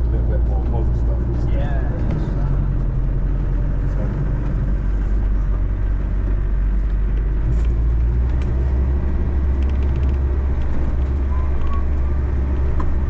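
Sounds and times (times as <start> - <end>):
diesel engine drone inside vehicle: 0.0 - 13.0.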